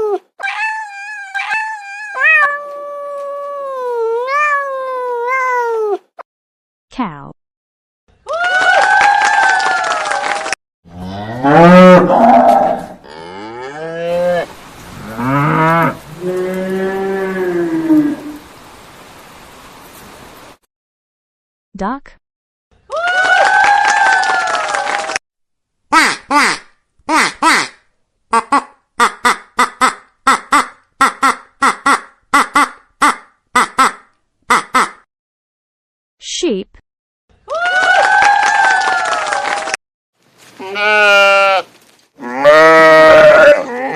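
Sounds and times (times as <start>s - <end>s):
cow mooing: 10.9s - 18.4s, 42.2s - 43.9s
duck quacking: 25.9s - 35.0s.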